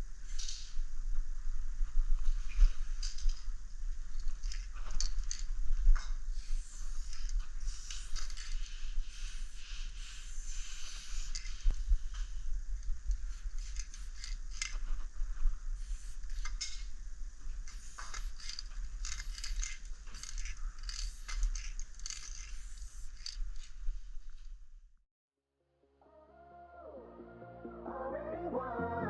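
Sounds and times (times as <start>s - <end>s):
spray paint can hissing: 6.0s - 14.9s, 15.7s - 23.7s.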